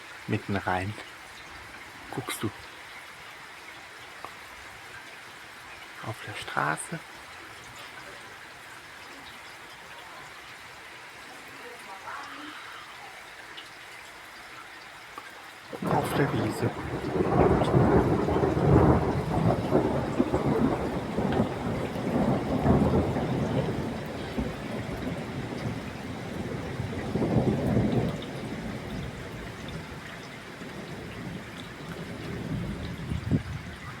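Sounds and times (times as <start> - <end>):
steady rainfall: 0.0 - 34.0
thunder rumbling: 15.7 - 34.0.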